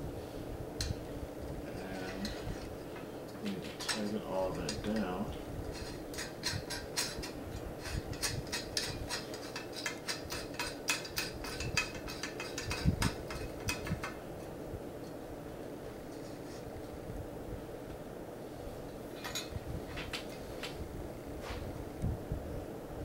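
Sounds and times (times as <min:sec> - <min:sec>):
small metal parts clicking: 0:05.7 - 0:14.2.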